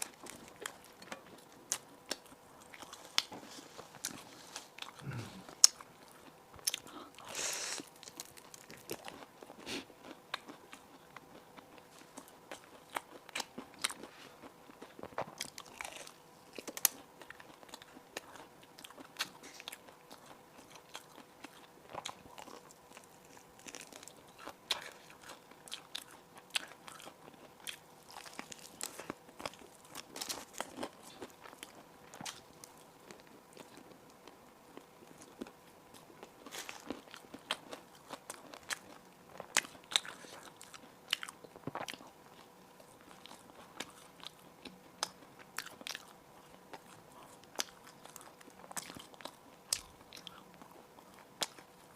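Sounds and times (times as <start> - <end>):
crisp bread being chewed: 0.0 - 51.9.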